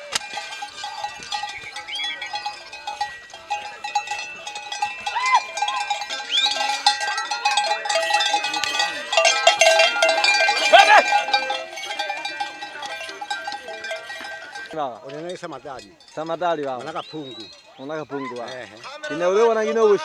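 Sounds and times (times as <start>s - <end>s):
shouted calls: 0.0s - 14.8s
cowbells clanking: 0.0s - 20.0s.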